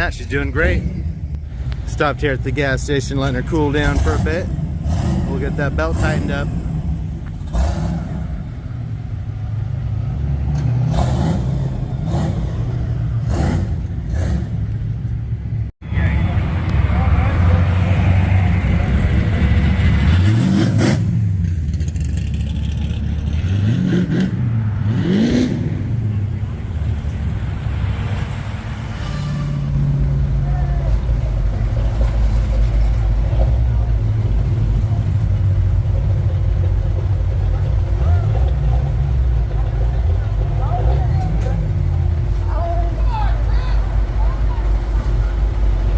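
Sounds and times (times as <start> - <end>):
bus engine rumbling: 0.0 - 45.9
vehicle engine running: 21.0 - 23.6, 29.9 - 45.9.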